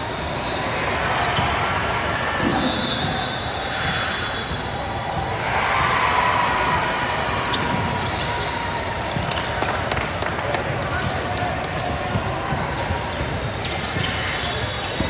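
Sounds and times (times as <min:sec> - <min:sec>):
shoe squeaks: 0:00.0 - 0:06.1, 0:12.8 - 0:15.0
background hubbub: 0:00.0 - 0:15.0
basketball bouncing on court: 0:00.1 - 0:15.0.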